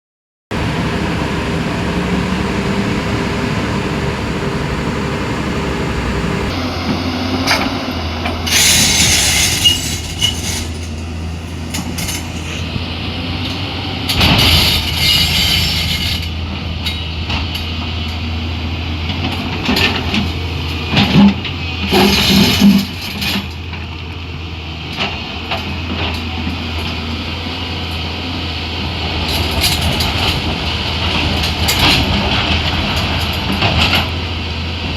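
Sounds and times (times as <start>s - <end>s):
diesel engine low hum: 0.5s - 34.9s.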